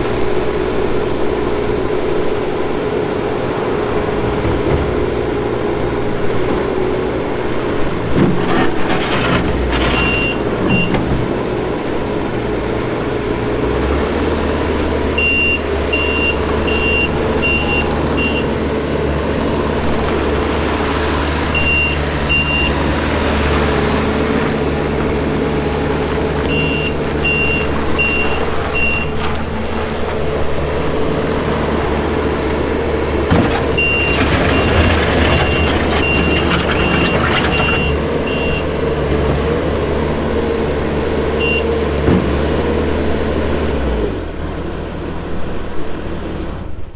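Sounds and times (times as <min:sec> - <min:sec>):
diesel engine running: 0:00.0 - 0:46.9
backup alarm beeps: 0:15.2 - 0:18.5, 0:26.5 - 0:29.1, 0:33.8 - 0:38.7, 0:41.4 - 0:41.7.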